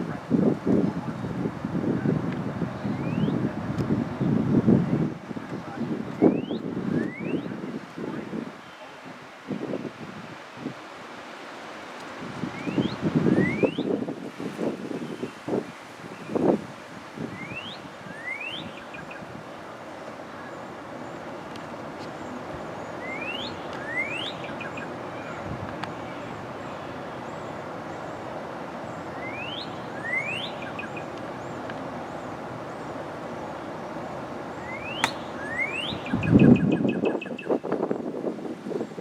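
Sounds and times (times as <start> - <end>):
bird singing whistled notes: 2.8 - 3.4, 6.2 - 7.6, 12.5 - 14.0, 17.3 - 19.2, 22.8 - 24.9, 29.1 - 31.6, 34.6 - 37.6
faint high bird calls: 22.2 - 27.5, 28.9 - 32.9.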